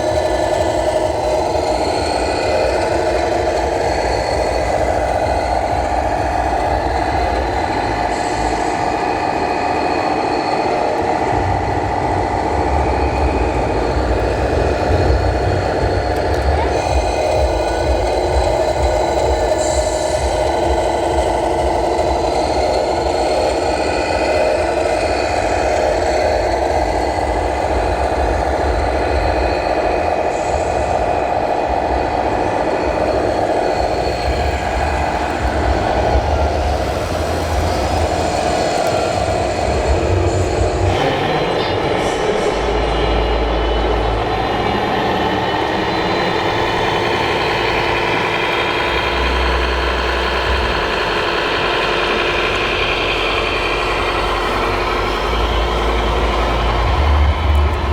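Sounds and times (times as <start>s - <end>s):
model truck engine drone: 0.0s - 57.9s.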